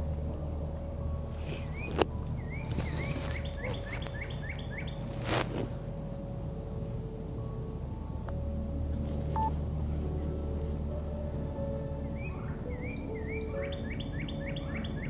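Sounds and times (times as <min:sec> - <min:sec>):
songbird singing: 0:00.0 - 0:15.0
wind rumble on microphone: 0:00.0 - 0:15.0
rustling: 0:01.4 - 0:05.9.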